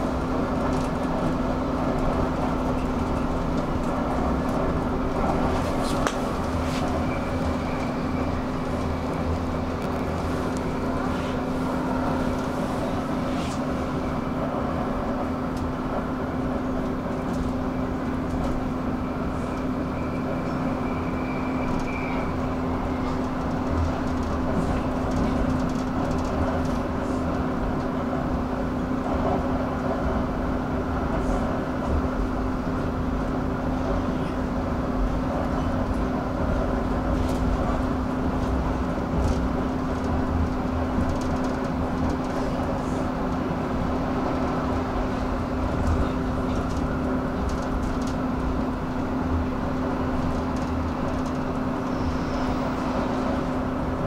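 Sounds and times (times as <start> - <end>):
wheels rumbling on track: 0.0 - 54.0.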